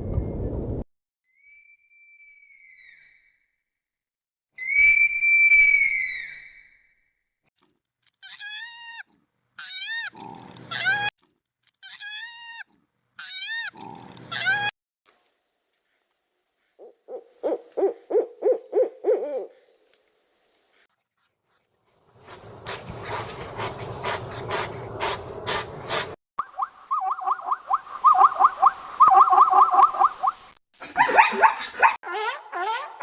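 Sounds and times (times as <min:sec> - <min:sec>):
animal call with bending pitch: 0:26.4 - 0:30.3.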